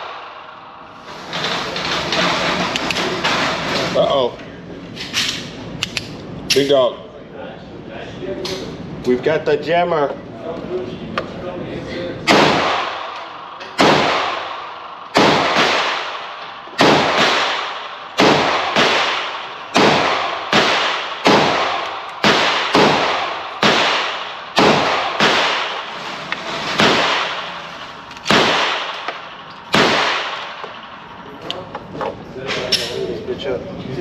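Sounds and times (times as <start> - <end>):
handgun shots echoing: 12.3 - 25.9, 28.2 - 31.0.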